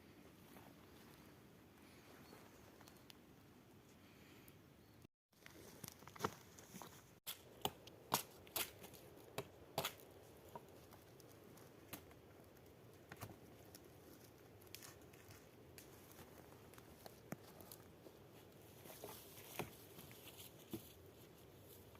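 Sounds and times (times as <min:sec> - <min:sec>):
light snaps and crackles: 0:09.8 - 0:17.9.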